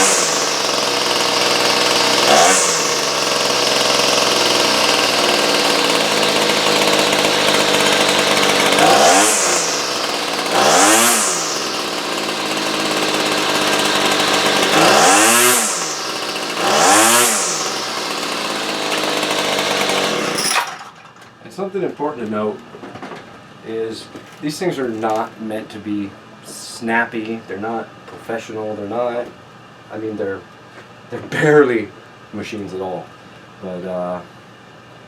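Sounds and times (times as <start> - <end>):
chainsaw idling and revving: 0.0 - 20.9.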